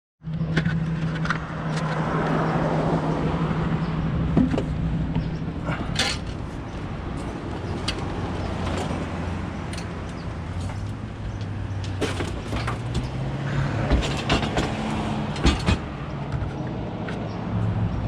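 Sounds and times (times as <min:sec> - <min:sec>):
truck engine running: 0:03.2 - 0:16.6
clicks and knocks: 0:07.6 - 0:17.2.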